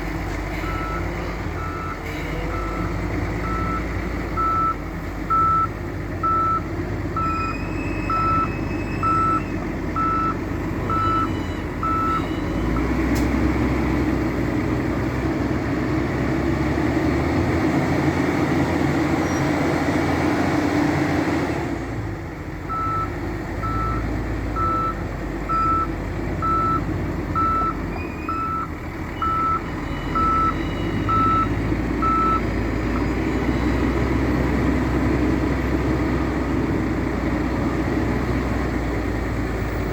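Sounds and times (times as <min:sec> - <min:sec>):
diesel engine running: 0:00.0 - 0:39.9
reversing alarm beeping: 0:00.6 - 0:12.9, 0:22.7 - 0:34.3.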